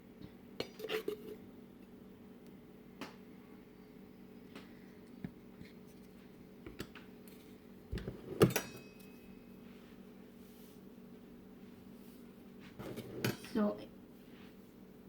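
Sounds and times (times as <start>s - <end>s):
faint steady hum: 0.0s - 15.0s
kitchen utensils clattering: 0.6s - 1.4s, 8.0s - 9.0s, 12.8s - 13.6s
faint ring: 8.4s - 9.6s.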